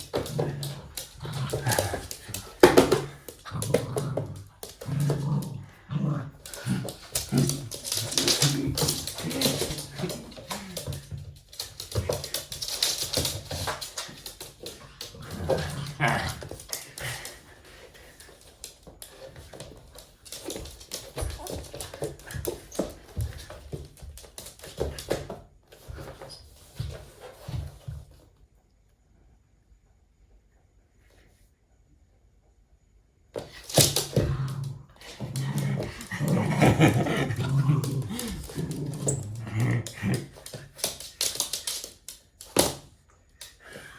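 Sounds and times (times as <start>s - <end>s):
dog vocalizing playfully: 35.6s - 40.4s.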